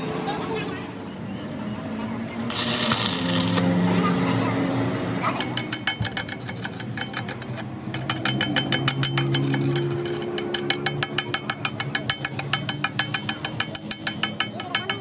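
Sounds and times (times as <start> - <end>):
rapid hammering on steel: 5.0 - 15.0.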